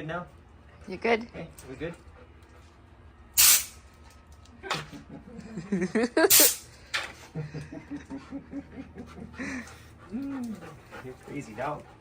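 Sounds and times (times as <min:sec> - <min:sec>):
compressed air blasts: 0:03.4 - 0:03.8, 0:06.3 - 0:06.7.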